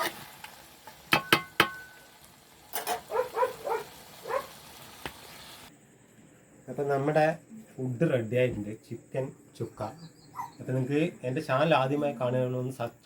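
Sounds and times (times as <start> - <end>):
metal pan and utensil clinking: 0.0 - 2.1, 2.7 - 3.2.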